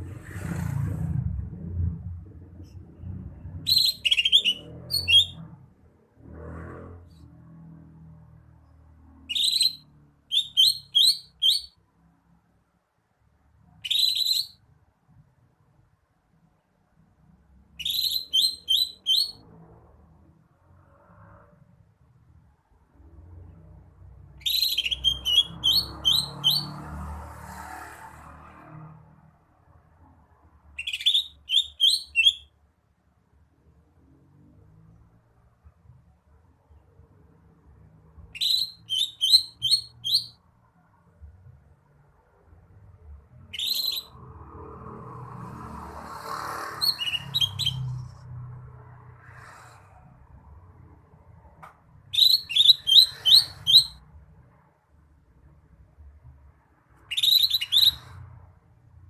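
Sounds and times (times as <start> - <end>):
soft low rumble: 0.0 - 3.7
sharp bird chirps: 3.6 - 5.5, 9.1 - 11.8, 13.8 - 14.7, 17.8 - 19.5, 24.3 - 26.8, 30.7 - 32.6, 38.2 - 40.4, 43.4 - 44.2, 46.7 - 48.2, 52.1 - 54.0, 57.0 - 58.2
bird whistling sharp notes: 3.7 - 5.4, 17.8 - 19.4, 38.4 - 40.4, 43.5 - 44.1, 52.1 - 54.0, 57.1 - 58.0.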